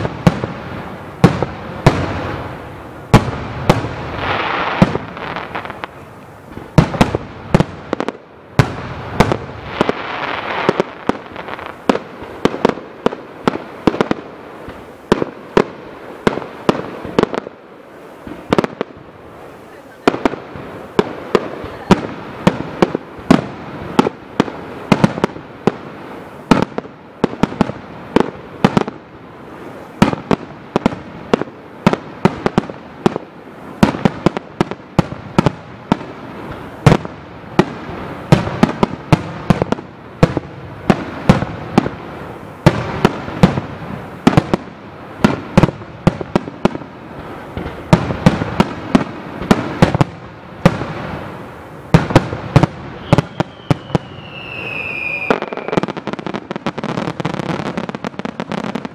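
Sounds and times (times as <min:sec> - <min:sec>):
aerial fireworks bangs: 0:00.0 - 0:02.5, 0:03.1 - 0:17.5.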